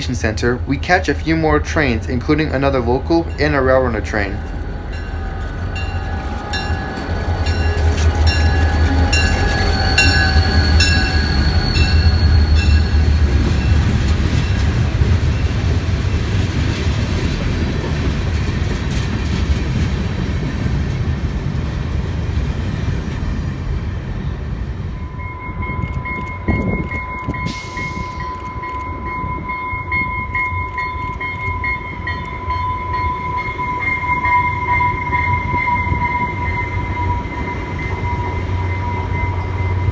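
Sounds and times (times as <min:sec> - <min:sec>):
steady high tone: 0:00.0 - 0:13.8
train engine rumble: 0:00.0 - 0:39.9
rhythmic clicking of wheels: 0:25.8 - 0:36.2.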